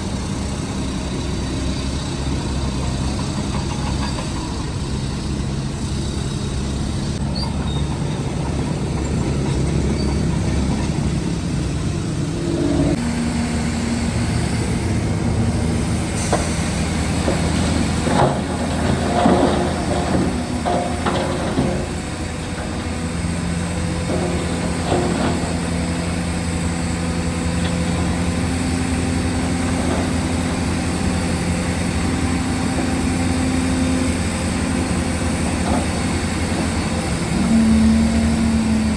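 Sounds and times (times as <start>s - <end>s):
diesel machinery engine running: 0.0s - 38.9s
metallic clanking and scraping rock: 16.2s - 26.2s.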